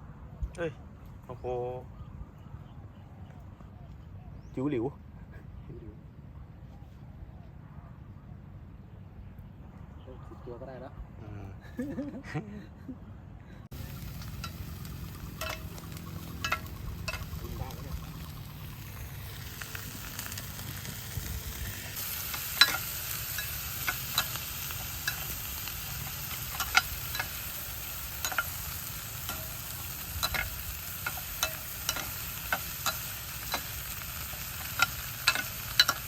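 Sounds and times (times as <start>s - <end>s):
food sizzling in a pan: 13.7s - 36.0s.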